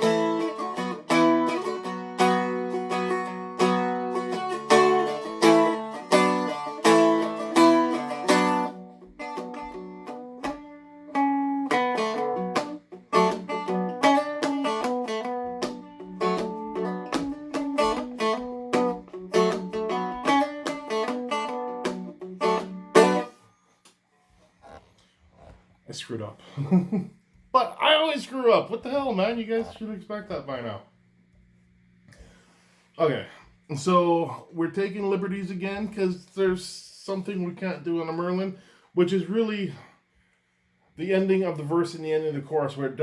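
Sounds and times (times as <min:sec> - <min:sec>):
picked string melody: 0:00.0 - 0:23.4
strummed chords: 0:00.0 - 0:23.5.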